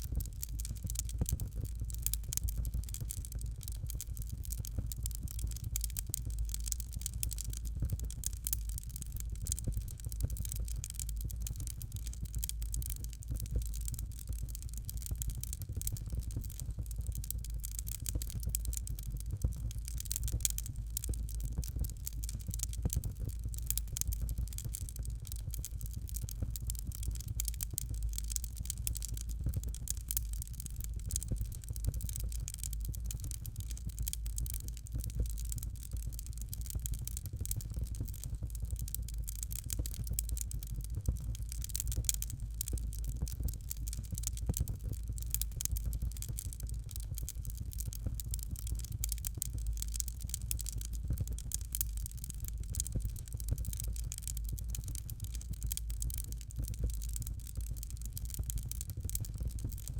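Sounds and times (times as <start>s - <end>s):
fire crackling: 0.0s - 59.9s.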